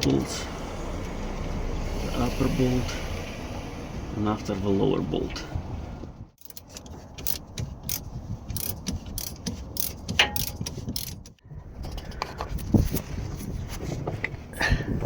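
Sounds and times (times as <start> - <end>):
ratchet wrench clicking: 6.4 - 11.4.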